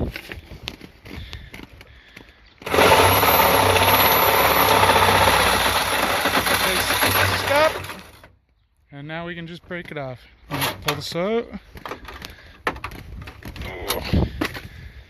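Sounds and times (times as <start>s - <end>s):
power tool cutting metal: 2.6s - 8.3s.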